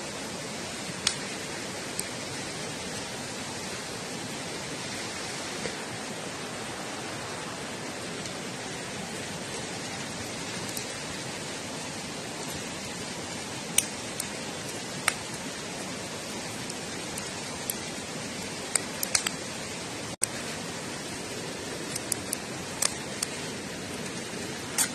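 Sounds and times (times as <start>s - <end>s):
campfire crackling: 0.0s - 24.9s
fire pops: 0.8s - 2.3s, 9.0s - 11.0s, 13.6s - 20.6s, 21.8s - 24.9s.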